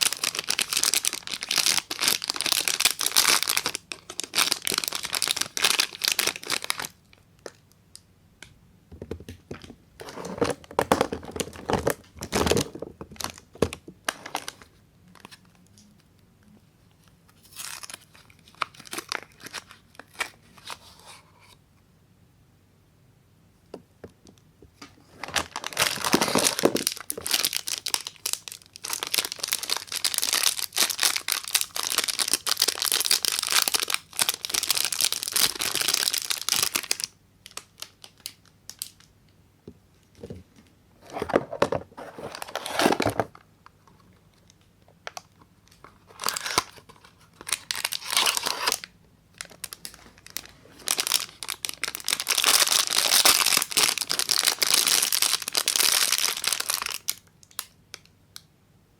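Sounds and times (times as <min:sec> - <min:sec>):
wrapper crinkling and tearing: 0:00.0 - 0:07.6, 0:10.2 - 0:15.6, 0:17.4 - 0:20.8, 0:25.0 - 0:39.1, 0:44.5 - 0:58.0.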